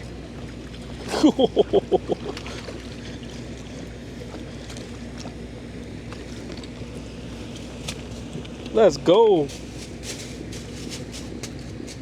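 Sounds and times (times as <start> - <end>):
faint steady hum: 0.0 - 12.0
light scattered ticks: 9.4 - 12.0.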